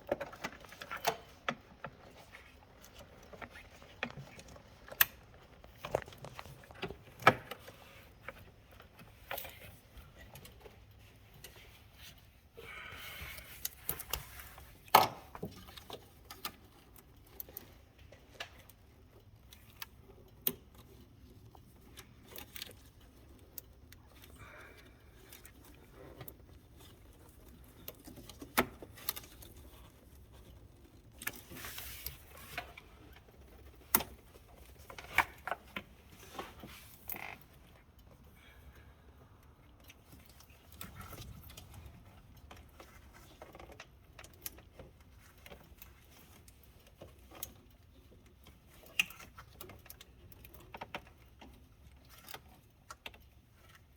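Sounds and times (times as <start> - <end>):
objects clicking and clattering: 0.0 - 11.8
rustling: 0.0 - 53.9.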